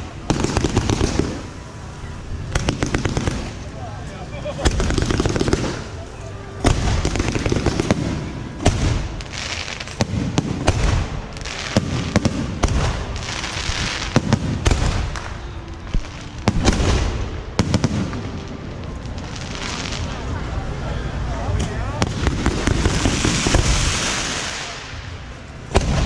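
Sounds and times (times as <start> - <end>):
firework bangs: 0.0 - 3.8, 4.6 - 20.4, 21.5 - 26.0
rockets whooshing: 4.6 - 20.4, 22.0 - 26.0.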